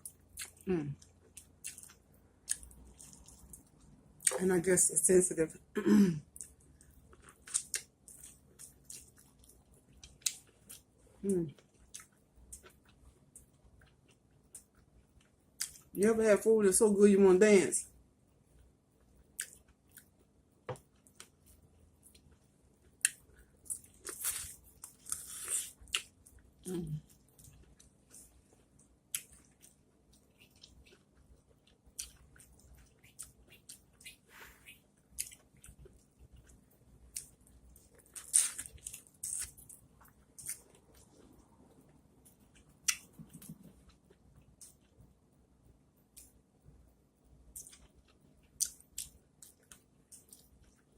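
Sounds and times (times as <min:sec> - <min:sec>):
person chewing corn on the cob: 0:00.0 - 0:04.4, 0:06.4 - 0:10.9, 0:20.9 - 0:44.9, 0:47.5 - 0:50.9
chewing mouth clicks and smacks: 0:31.9 - 0:41.2, 0:42.3 - 0:44.9, 0:47.5 - 0:50.9.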